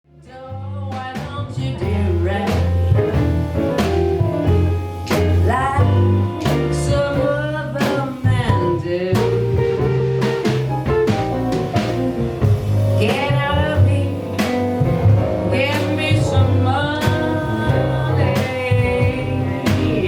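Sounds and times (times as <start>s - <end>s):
blues swing band playing: 0.1s - 20.0s
person singing: 15.5s - 20.0s.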